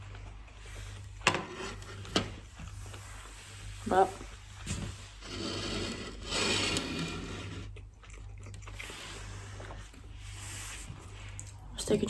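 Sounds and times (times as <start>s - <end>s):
person chewing food: 7.0s - 10.4s.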